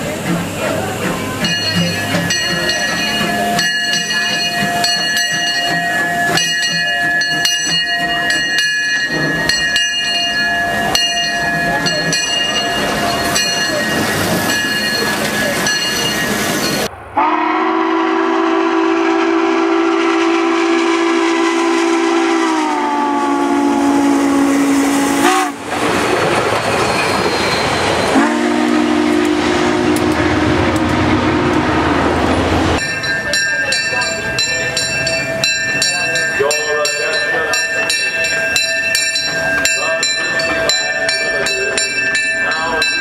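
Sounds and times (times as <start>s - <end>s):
train horn chord: 17.2s - 25.6s, 28.2s - 32.1s.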